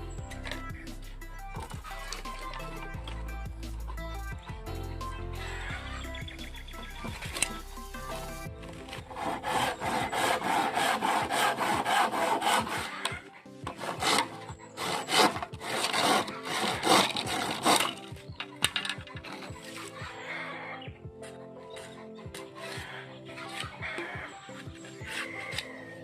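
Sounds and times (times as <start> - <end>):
handsaw cutting bamboo: 8.9 - 18.1, 24.8 - 25.7.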